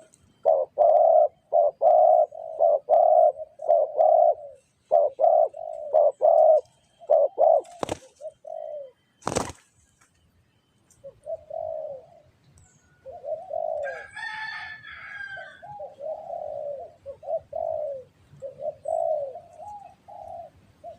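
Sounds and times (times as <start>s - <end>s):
higher bird chirping: 0.0s - 9.0s
dove cooing: 0.0s - 9.5s, 11.0s - 20.9s.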